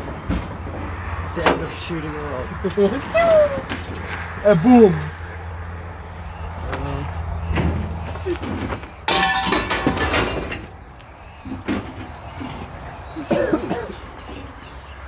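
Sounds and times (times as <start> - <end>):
scrap metal crashing onto pile: 8.5 - 10.7
metal knocks: 8.5 - 10.8.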